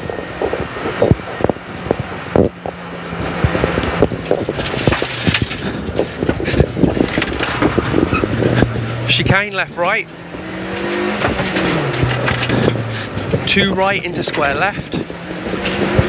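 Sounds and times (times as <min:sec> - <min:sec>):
rally car engine running: 0:00.0 - 0:16.0
knocks and rattles: 0:00.4 - 0:16.0.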